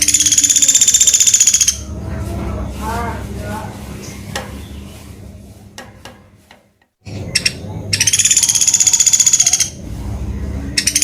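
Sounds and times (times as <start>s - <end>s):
bird high trill: 0.0s - 1.9s, 7.1s - 9.8s.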